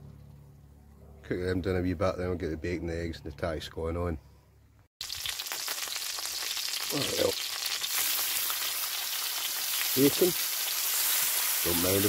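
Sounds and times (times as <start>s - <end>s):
sausages and bacon sizzling: 5.0s - 12.0s.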